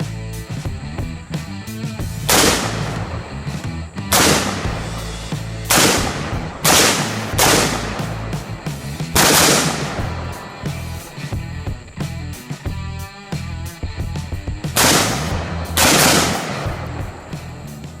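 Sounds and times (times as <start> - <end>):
rock music with guitar: 0.0 - 18.0
gunshots: 2.3 - 3.3, 4.1 - 11.3, 14.8 - 17.6.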